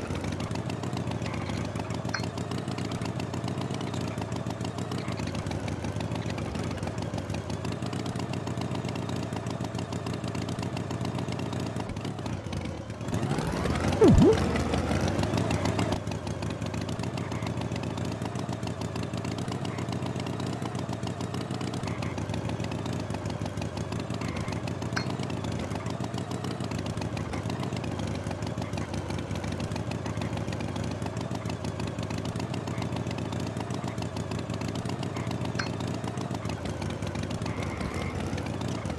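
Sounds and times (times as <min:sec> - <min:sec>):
engine droning: 0:10.0 - 0:38.9
loud burst with falling pitch: 0:14.0 - 0:14.7.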